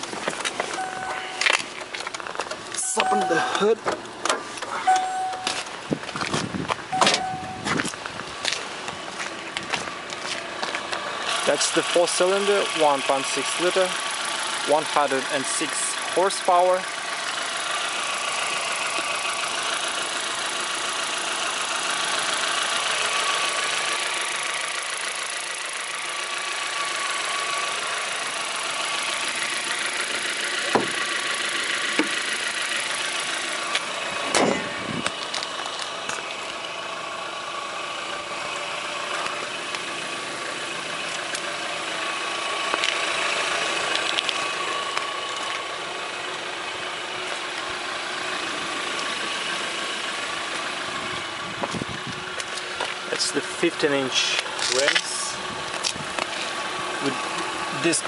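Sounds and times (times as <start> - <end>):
car engine idling: 0.0 - 58.0
car bonnet slamming shut: 7.0 - 7.3, 30.7 - 31.0, 34.3 - 34.6.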